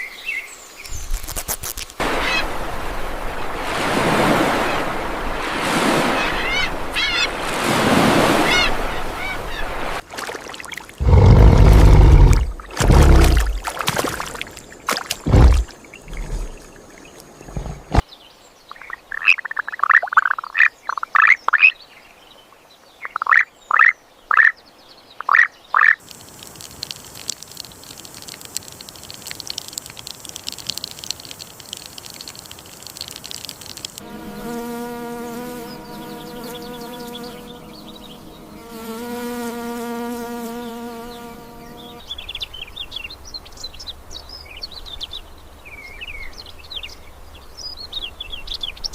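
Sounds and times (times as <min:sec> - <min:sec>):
insect-like hiss: 0:00.0 - 0:07.4, 0:08.4 - 0:18.0, 0:25.8 - 0:42.3
flying insect buzzing: 0:11.0 - 0:13.8, 0:31.5 - 0:42.0
bird chirps: 0:18.6 - 0:22.0.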